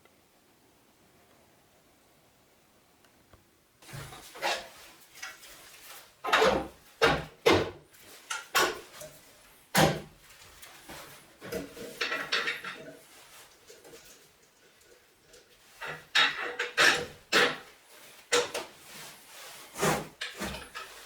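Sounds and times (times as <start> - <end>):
scraping and rubbing: 3.8 - 9.6, 10.2 - 21.0
hard objects knocking and clunking: 6.2 - 10.1.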